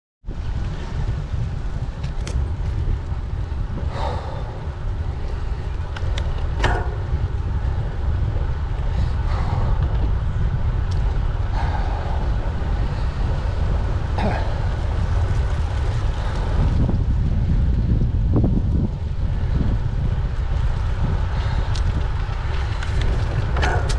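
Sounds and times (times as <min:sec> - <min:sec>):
wind buffeting microphone: 0:00.3 - 0:23.9
bicycle clicks and rattles: 0:01.7 - 0:09.6, 0:14.6 - 0:23.9.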